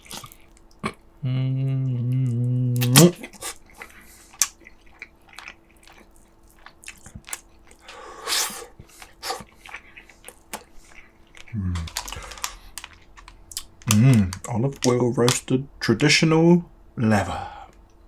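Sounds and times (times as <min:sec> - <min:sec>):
lip smacks and chewing: 0:00.0 - 0:01.1, 0:02.2 - 0:15.4
man humming mmm: 0:00.8 - 0:03.5, 0:11.5 - 0:12.0.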